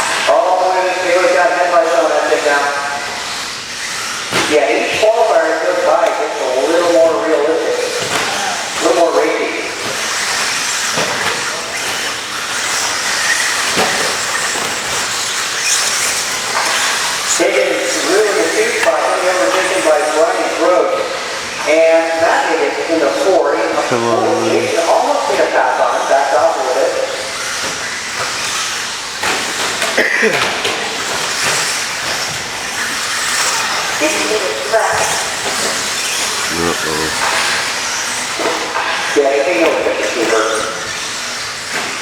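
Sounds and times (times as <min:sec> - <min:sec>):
rc trucks whining motors: 0:01.2 - 0:20.5, 0:26.0 - 0:29.9, 0:30.8 - 0:38.4, 0:40.8 - 0:42.0
toy trucks racing hiss: 0:03.1 - 0:04.4, 0:09.9 - 0:18.6.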